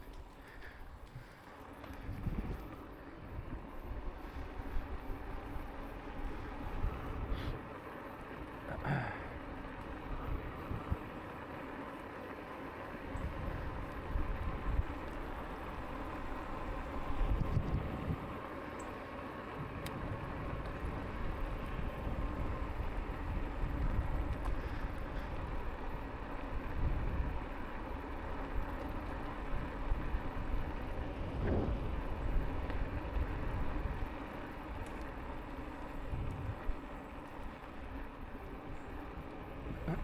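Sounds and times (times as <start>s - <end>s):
e-bike rolling noise: 0.0s - 40.0s
wind buffeting microphone: 1.9s - 7.6s, 13.1s - 18.5s, 19.6s - 40.0s.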